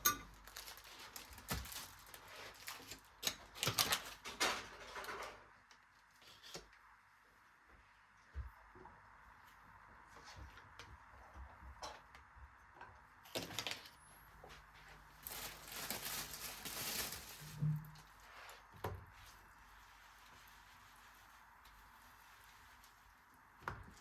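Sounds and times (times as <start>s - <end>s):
scrape or rustle: 0.6s - 3.0s, 6.1s - 6.7s, 14.5s - 23.4s.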